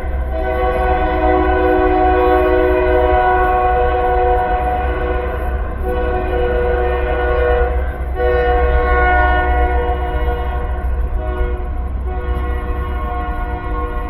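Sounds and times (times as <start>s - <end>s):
sustained horn-like chord: 0.0s - 14.0s.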